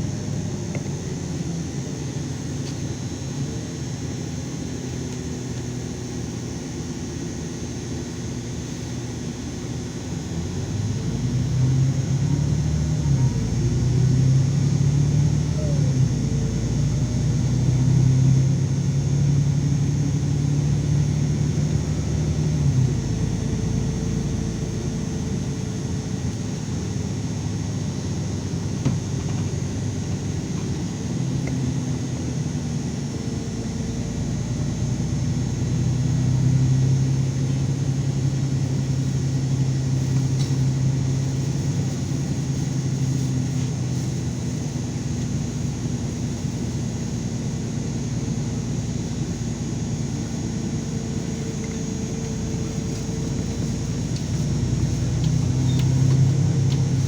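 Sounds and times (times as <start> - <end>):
bus engine rumbling: 0.0 - 57.0.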